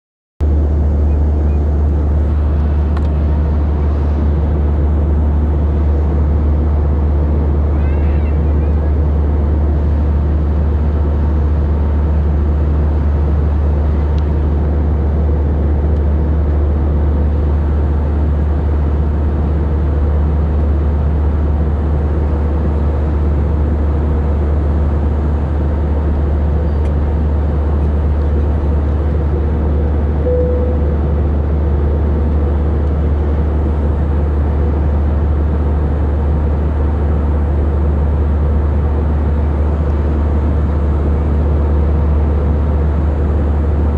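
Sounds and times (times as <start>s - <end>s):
airliner cabin engine drone: 0.4s - 43.9s
faint tone: 30.2s - 31.1s.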